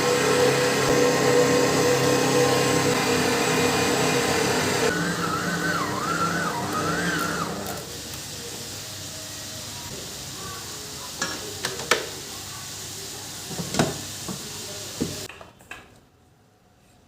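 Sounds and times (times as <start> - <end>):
food sizzling in a pan: 7.7 - 15.3.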